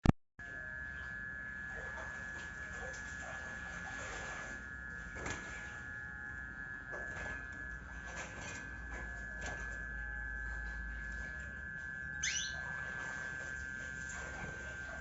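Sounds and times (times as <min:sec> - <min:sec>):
steady high-pitched whine: 0:00.4 - 0:15.0
canary chirping: 0:12.1 - 0:12.6.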